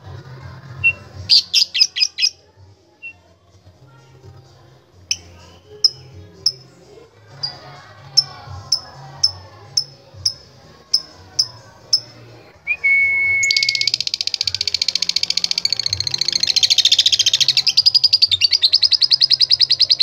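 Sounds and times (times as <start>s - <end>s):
lovebird chirping and trilling: 0.8s - 2.4s, 5.1s - 6.6s, 8.2s - 12.1s, 13.4s - 20.0s.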